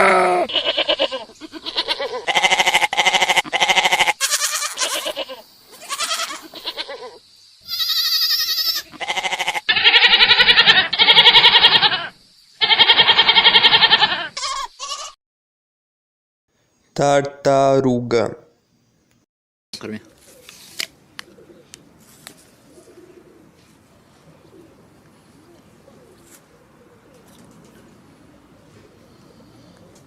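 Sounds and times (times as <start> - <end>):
goats bleating: 0.0 - 15.2.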